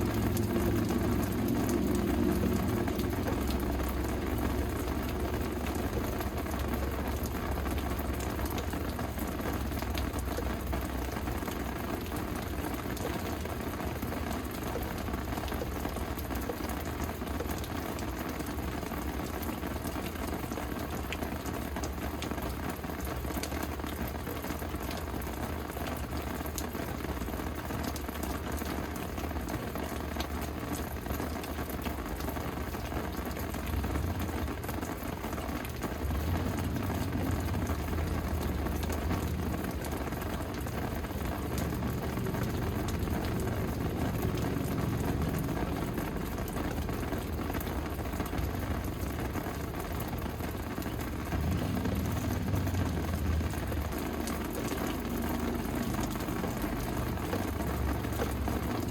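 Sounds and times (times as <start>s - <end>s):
low rumble: 0.0s - 10.2s, 35.8s - 58.8s
steady rain falling: 0.0s - 58.9s.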